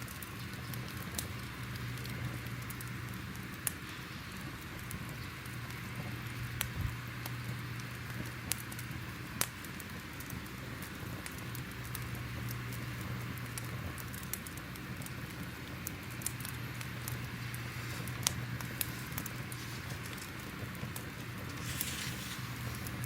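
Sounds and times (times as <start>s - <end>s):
fire hiss: 0.0s - 23.0s
fire pops and crackles: 0.0s - 23.0s.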